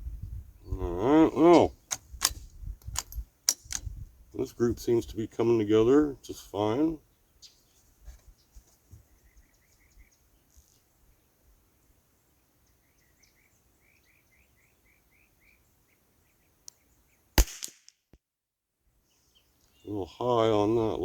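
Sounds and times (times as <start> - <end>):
rifle shot: 1.9 - 3.8, 17.4 - 17.9.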